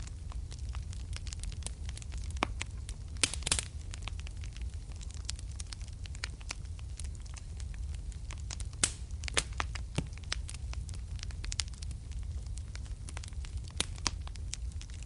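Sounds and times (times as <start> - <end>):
low steady rumble: 0.0 - 15.0
wood fire crackling: 0.0 - 15.0.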